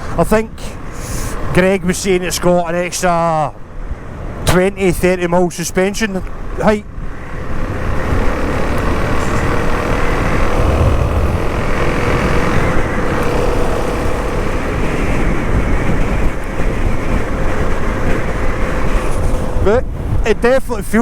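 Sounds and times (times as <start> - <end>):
wind and road noise: 0.0 - 21.0
single-cylinder engine running: 7.7 - 19.7.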